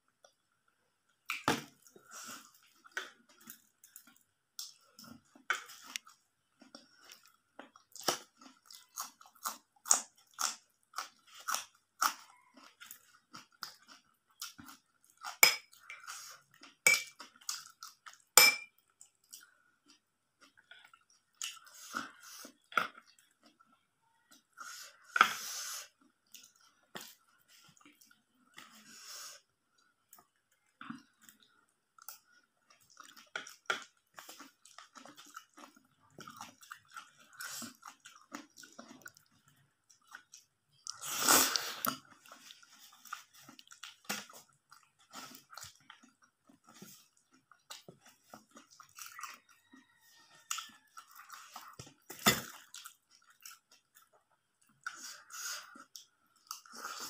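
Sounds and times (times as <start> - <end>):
chewing and crunching: 1.1 - 57.0
metal spoon clinking on plate: 16.9 - 17.1, 18.4 - 18.7.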